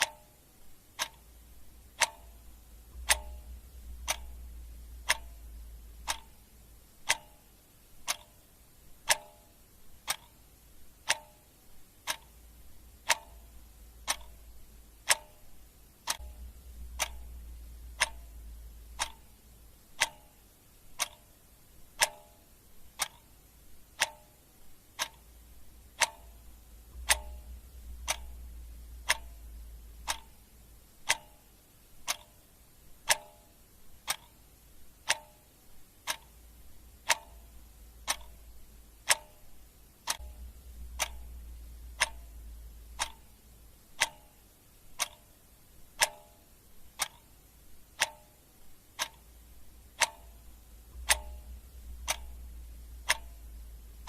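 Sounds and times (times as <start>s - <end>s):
clock ticking: 0.0s - 54.0s
faint low hum: 0.0s - 54.0s.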